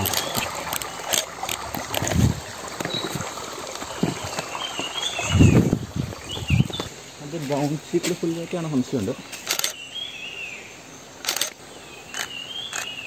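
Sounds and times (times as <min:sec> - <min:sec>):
forest ambience: 0:00.0 - 0:13.0
stream flowing: 0:00.0 - 0:13.0
dull low thumps: 0:01.8 - 0:07.0.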